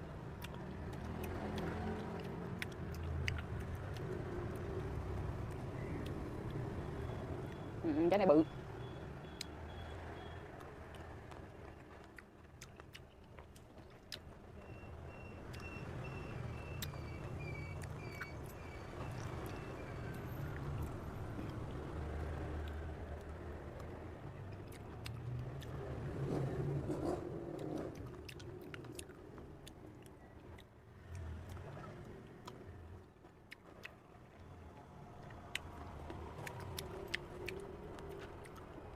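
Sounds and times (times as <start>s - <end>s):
road traffic rumble: 0.0s - 38.9s
person chewing cherries: 0.3s - 4.8s, 10.6s - 14.3s, 27.6s - 34.5s, 35.2s - 38.9s
wet mouth clicks: 0.4s - 4.7s, 35.2s - 38.8s.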